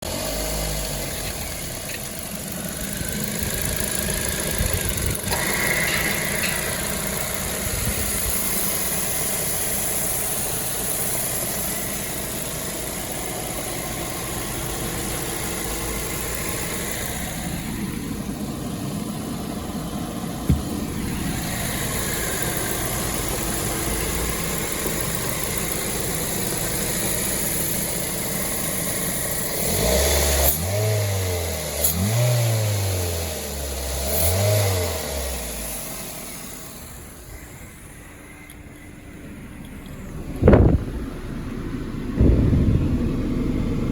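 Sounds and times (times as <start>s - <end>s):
car engine idling: 0.0s - 30.4s, 32.9s - 43.9s.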